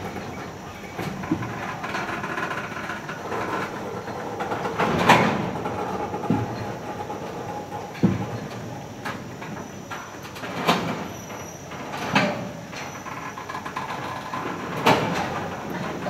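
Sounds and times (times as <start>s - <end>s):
wheels and couplings clanking: 0.0s - 16.0s
faint wheel squeal: 11.0s - 11.8s, 12.8s - 13.4s.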